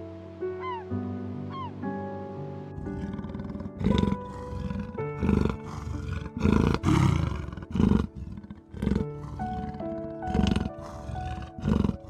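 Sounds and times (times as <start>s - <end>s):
jaguar roaring grunts: 2.8s - 12.0s.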